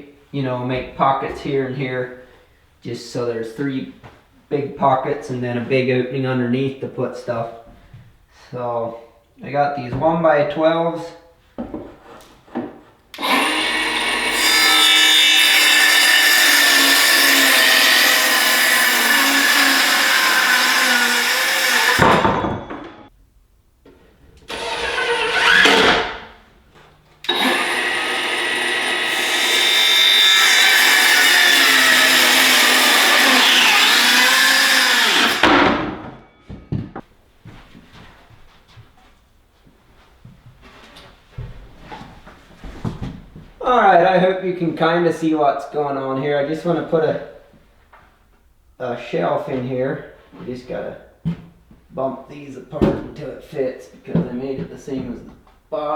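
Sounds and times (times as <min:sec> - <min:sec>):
electric saw cutting boards: 0:13.2 - 0:22.5, 0:24.5 - 0:26.4, 0:27.2 - 0:35.8.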